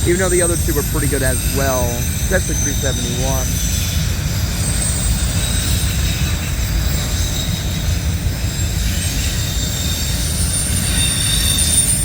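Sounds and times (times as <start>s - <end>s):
freight cars rumbling past: 0.0s - 12.0s
high-pitched wheel squeal: 0.0s - 12.0s.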